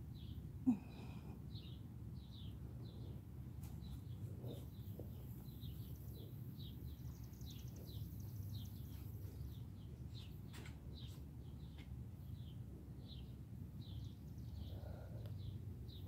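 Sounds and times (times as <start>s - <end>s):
small bird chirping: 1.5s - 16.0s.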